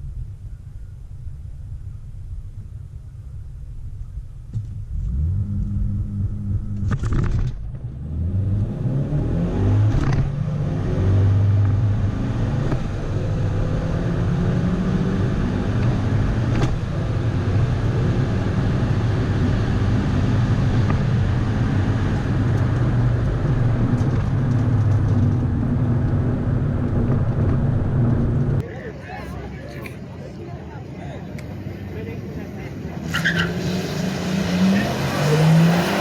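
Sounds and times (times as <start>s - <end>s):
car engine running: 0.4s - 8.3s.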